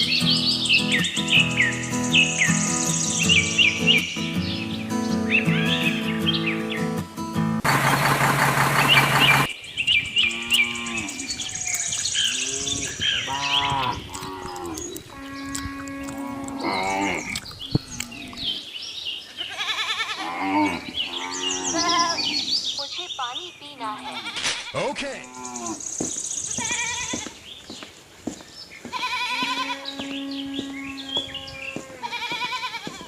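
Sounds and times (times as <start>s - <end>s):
birds chirping: 0.0s - 33.0s
cattle mooing: 10.2s - 11.3s, 12.3s - 18.4s, 19.8s - 22.5s, 29.1s - 32.2s.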